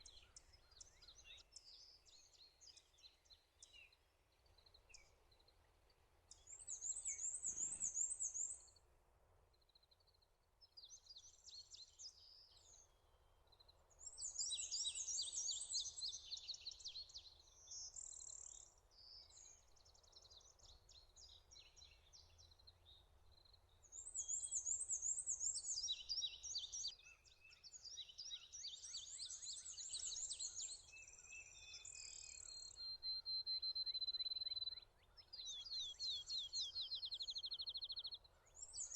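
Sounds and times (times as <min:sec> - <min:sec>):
songbirds singing trills: 0:00.0 - 0:08.8, 0:09.6 - 0:38.9.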